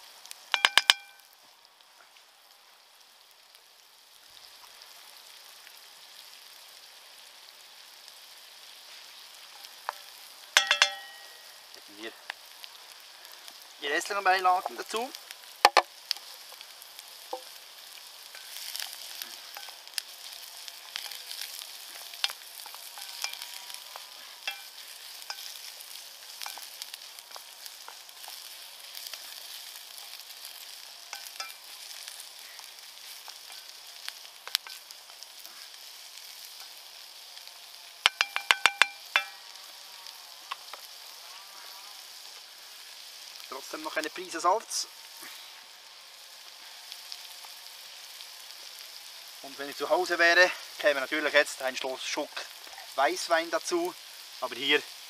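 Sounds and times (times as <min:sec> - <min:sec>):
vegetables sizzling in a pan: 0:00.0 - 0:55.0
crackles and clicks: 0:00.1 - 0:02.3, 0:08.8 - 0:41.2, 0:42.1 - 0:55.0
ringing metal knocks: 0:00.6 - 0:01.2, 0:10.6 - 0:11.3, 0:38.1 - 0:39.4.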